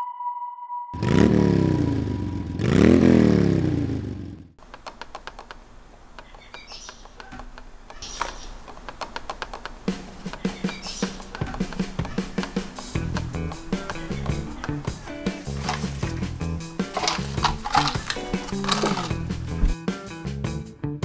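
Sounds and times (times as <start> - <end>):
motorcycle engine revving: 1.0 - 4.6.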